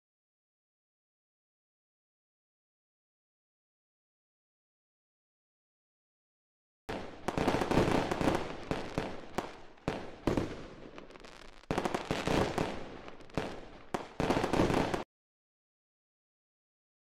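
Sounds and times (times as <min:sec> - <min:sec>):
fireworks banging and crackling: 0:06.9 - 0:15.1.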